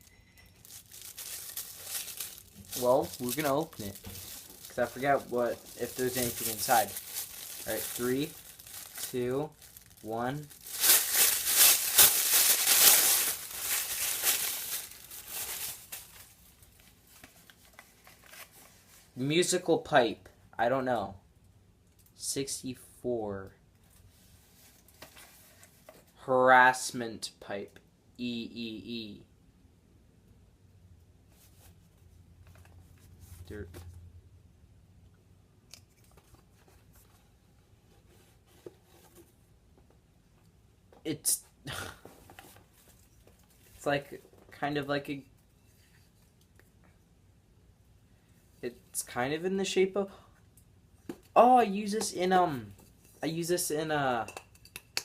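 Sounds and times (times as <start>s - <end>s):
pipe crinkling and tearing: 0.5s - 18.7s.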